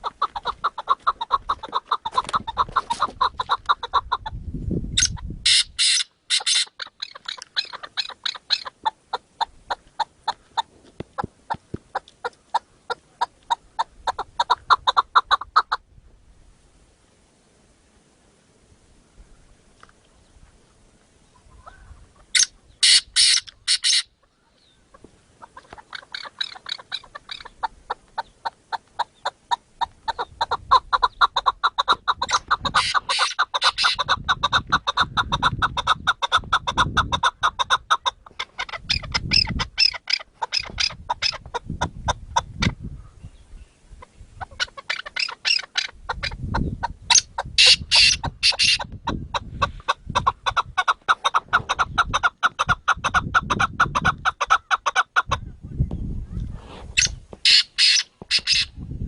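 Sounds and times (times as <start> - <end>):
partridges clucking: 5.0 - 9.0.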